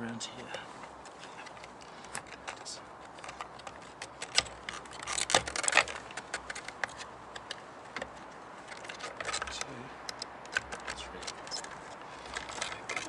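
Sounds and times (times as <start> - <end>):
plastic clips clicking: 8.7 - 13.0.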